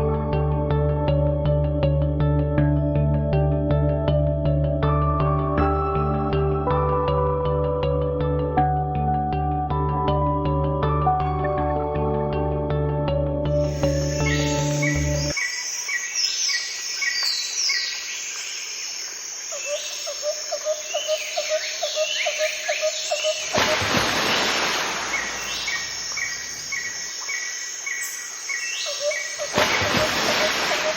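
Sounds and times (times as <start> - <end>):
low pulsed bird calls: 13.5 - 17.9, 19.5 - 30.9
bird repeated chirp: 13.8 - 18.0, 19.6 - 23.7, 24.4 - 30.9.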